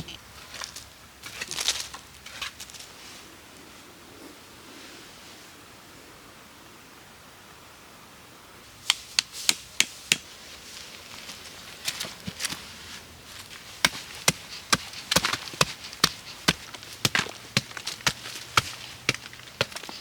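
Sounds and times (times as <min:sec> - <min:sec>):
wood chopping strikes: 0:08.9 - 0:10.3, 0:13.8 - 0:20.0.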